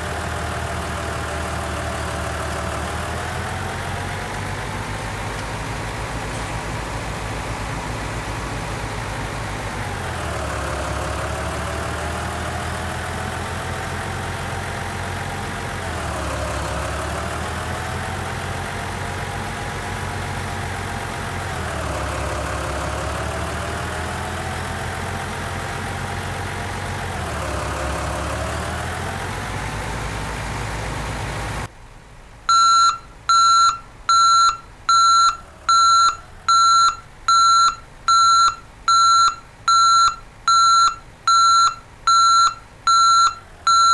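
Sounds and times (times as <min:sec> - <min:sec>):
vehicle engine running: 0:00.0 - 0:31.8, 0:33.1 - 0:43.9
electronic reversing beeps: 0:32.5 - 0:43.9.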